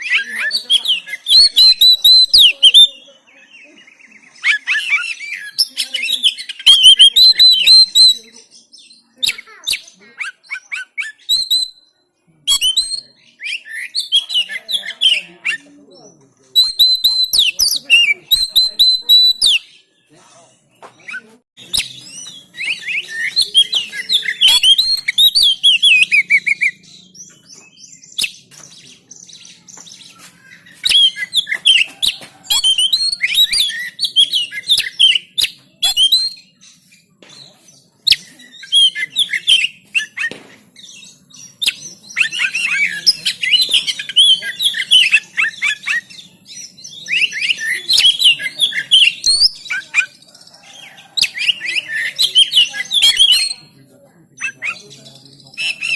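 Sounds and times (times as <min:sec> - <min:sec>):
bird singing whistled phrases: 0:00.0 - 0:11.9, 0:12.5 - 0:15.7, 0:16.5 - 0:19.8, 0:21.0 - 0:36.7, 0:38.0 - 0:53.7.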